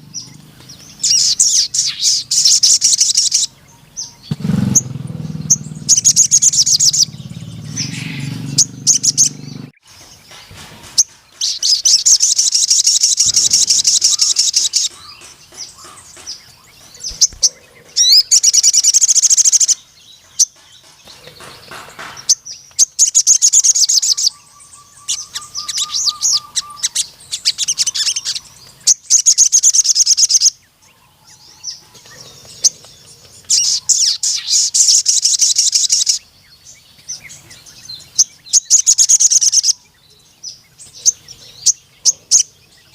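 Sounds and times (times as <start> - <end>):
sunbird trilling song: 0.0 - 42.9
low hum: 4.3 - 9.8.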